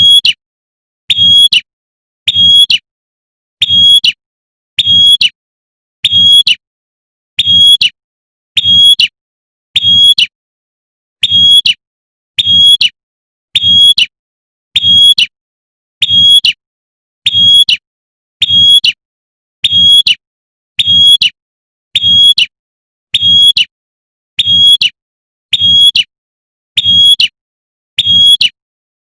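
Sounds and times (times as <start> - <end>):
bird high-pitched call: 0.0 - 0.4, 1.1 - 2.9, 3.6 - 4.2, 4.8 - 5.4, 6.0 - 6.6, 7.4 - 8.0, 8.6 - 9.2, 9.8 - 10.4, 11.2 - 11.8, 12.4 - 13.0, 13.6 - 15.4, 16.0 - 16.6, 17.2 - 17.8, 18.4 - 19.0, 19.6 - 20.2, 20.8 - 21.4, 22.0 - 23.7, 24.4 - 26.1, 26.8 - 27.4, 28.0 - 28.6.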